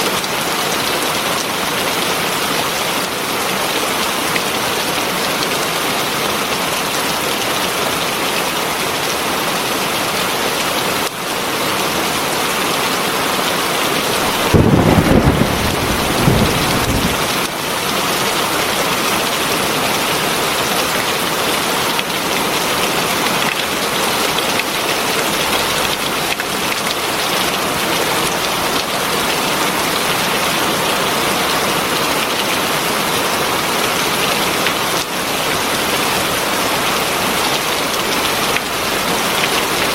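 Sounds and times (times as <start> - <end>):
heavy rain falling: 0.0 - 39.9
thunder rumbling: 14.2 - 17.5.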